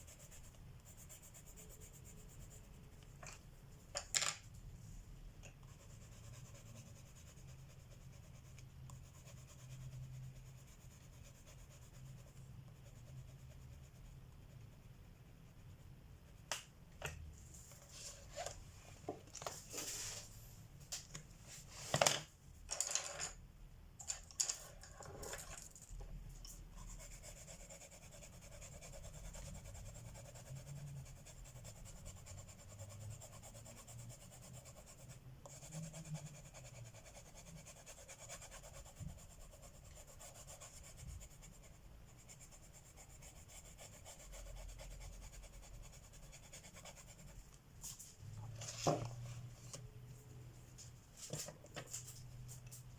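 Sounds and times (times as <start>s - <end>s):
pencil scratching on paper: 0.0s - 3.1s, 5.6s - 16.4s, 26.5s - 47.5s.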